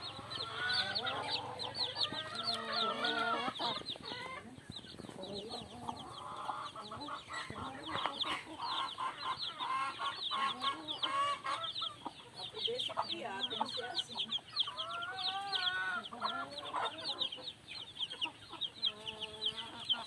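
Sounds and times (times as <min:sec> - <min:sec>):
chickens clucking: 0:00.0 - 0:20.0
chicks peeping: 0:00.0 - 0:20.0.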